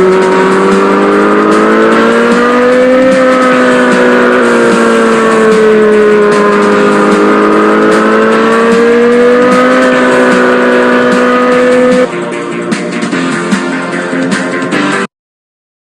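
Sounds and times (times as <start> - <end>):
mini bike engine running at high revs: 0.0 - 12.1.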